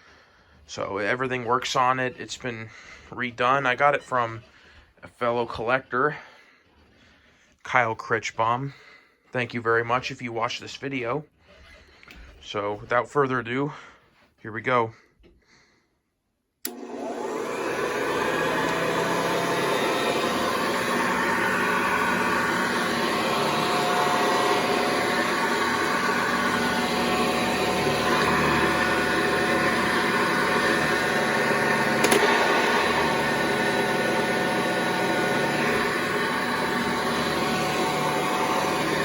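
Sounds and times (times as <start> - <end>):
vacuum cleaner motor whining: 16.6 - 39.0
vacuum cleaner switch click: 16.6 - 39.0.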